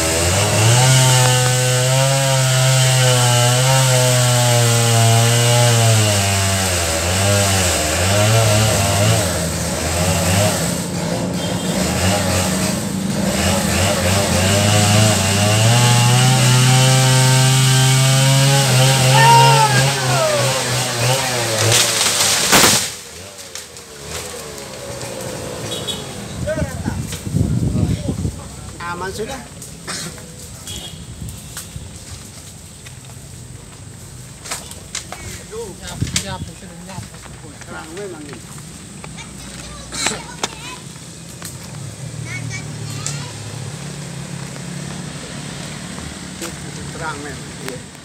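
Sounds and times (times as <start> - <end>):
chainsaw cutting wood: 0.0 - 26.2.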